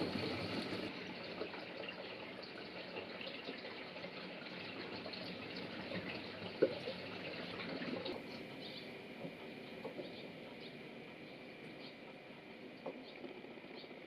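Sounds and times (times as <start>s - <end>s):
water rushing into washing machine: 0.0s - 8.3s
small drips and ticks: 0.0s - 14.0s.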